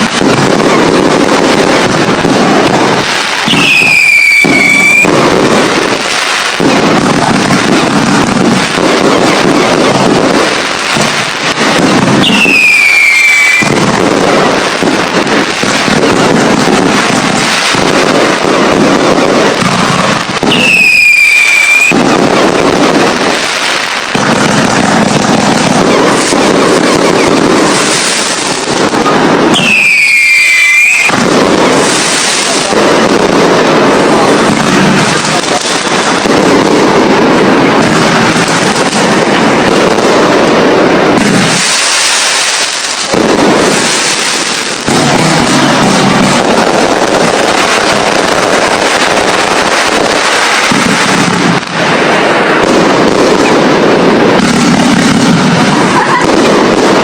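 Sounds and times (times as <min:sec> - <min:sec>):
fireworks bangs and crackling: 0:00.0 - 0:57.0
firework whistle falling: 0:03.4 - 0:05.3, 0:12.2 - 0:14.4, 0:20.4 - 0:22.6, 0:25.6 - 0:28.2, 0:29.0 - 0:31.2.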